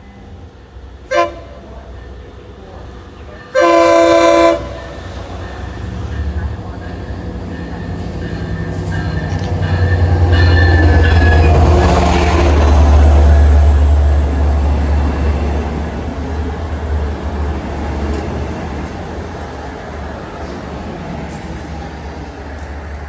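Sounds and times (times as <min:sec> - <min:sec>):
diesel train passing: 0:00.0 - 0:23.0.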